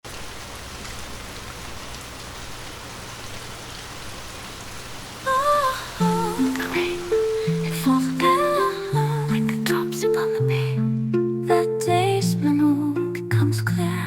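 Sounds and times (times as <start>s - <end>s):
rainfall hiss: 0.0s - 10.4s
plucked string melody: 6.1s - 14.0s.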